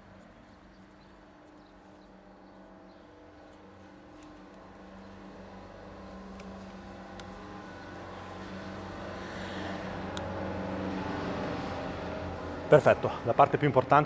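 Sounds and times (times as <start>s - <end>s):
vehicle engine running: 4.3s - 14.0s.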